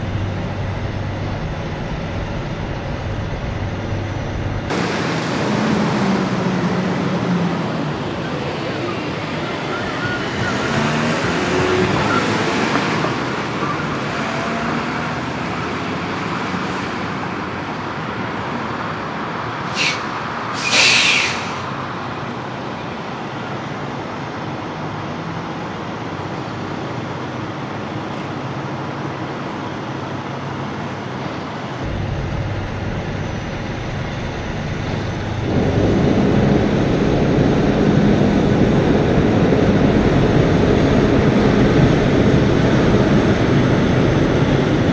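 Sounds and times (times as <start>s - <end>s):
truck engine and road noise: 0.0s - 44.9s
short air hisses: 19.6s - 21.8s.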